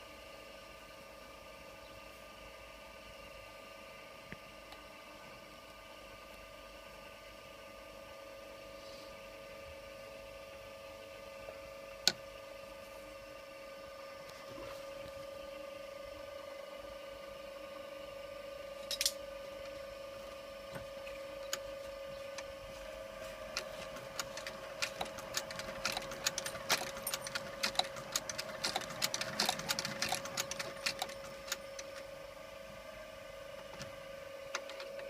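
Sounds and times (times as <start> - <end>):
sewing machine motor hum: 21.2 - 35.0
sewing machine clacking: 23.5 - 32.0.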